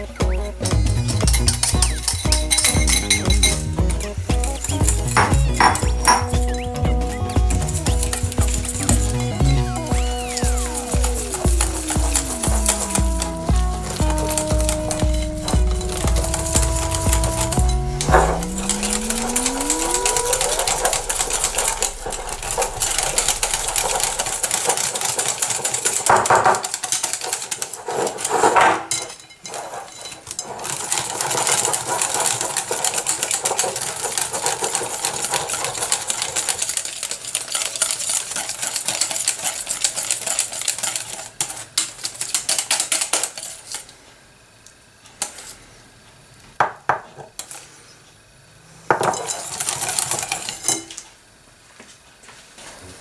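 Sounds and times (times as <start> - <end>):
whisk clattering against glass bowl: 0.0 - 6.6, 7.3 - 17.7, 18.4 - 43.5, 49.0 - 50.9.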